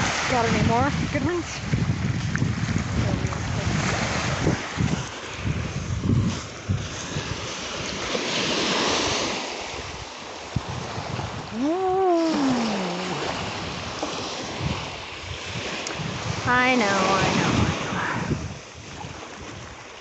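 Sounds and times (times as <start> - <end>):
surf washing on beach: 0.0 - 20.0
wind on microphone: 0.0 - 20.0
short wordless vocal sound: 11.6 - 13.6.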